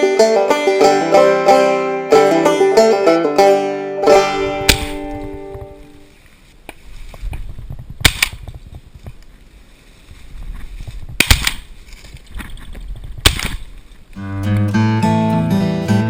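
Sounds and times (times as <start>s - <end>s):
outdoor noise: 0.0s - 16.0s
shotgun shots: 4.6s - 5.1s, 8.0s - 8.4s, 11.2s - 11.7s, 13.2s - 13.6s.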